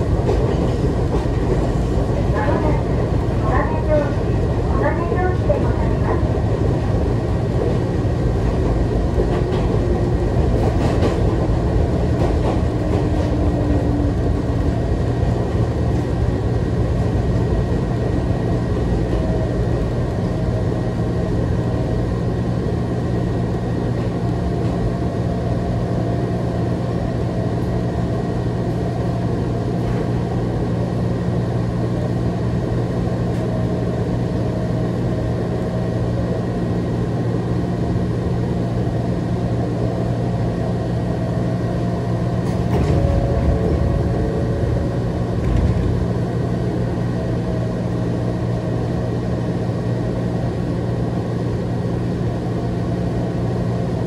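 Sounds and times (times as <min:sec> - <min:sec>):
rail rumble: 0:00.0 - 0:54.0
train low hum: 0:00.0 - 0:54.0.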